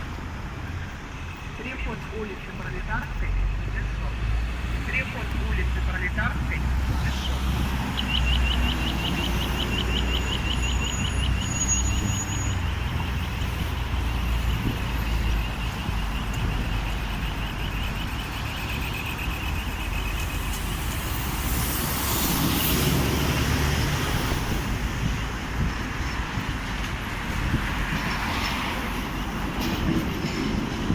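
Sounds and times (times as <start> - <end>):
street traffic: 0.0 - 30.9
vehicle passing: 3.4 - 11.4, 12.8 - 25.7
pedestrian signal ticking: 5.0 - 20.7.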